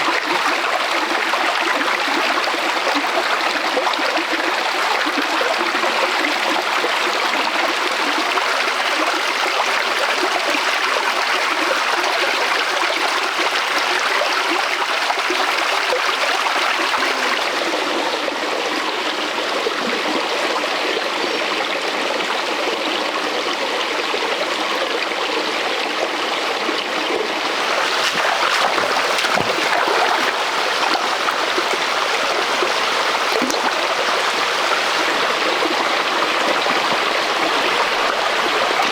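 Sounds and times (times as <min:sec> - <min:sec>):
stream flowing over rocks: 0:27.2 - 0:38.9.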